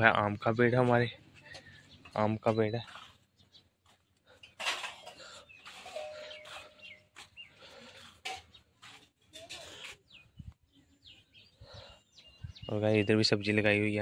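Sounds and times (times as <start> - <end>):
farmyard birds calling: 0.0 - 14.0
rustling and scuffing: 2.5 - 10.3.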